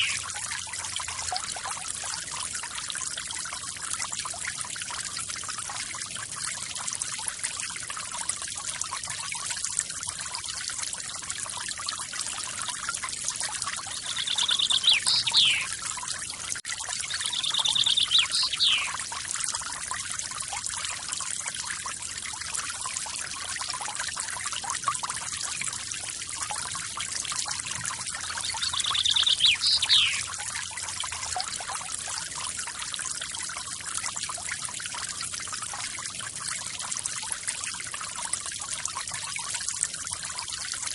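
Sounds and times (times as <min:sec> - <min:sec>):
songbird trilling: 0:00.0 - 0:00.2, 0:13.9 - 0:15.7, 0:17.1 - 0:19.0, 0:28.3 - 0:30.3.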